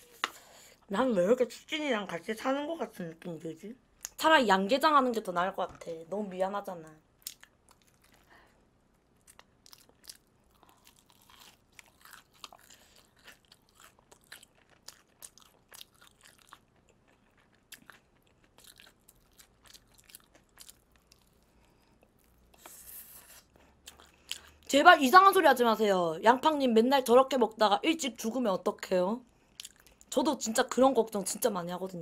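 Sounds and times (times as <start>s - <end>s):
crunching crispy fried chicken: 9.2s - 21.5s.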